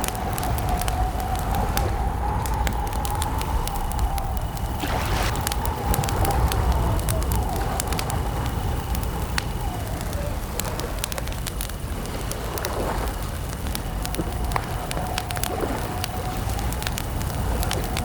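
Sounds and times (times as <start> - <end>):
low rumble: 0.0 - 12.2
campfire crackling and popping: 0.0 - 18.0
crickets chirping: 0.0 - 18.0.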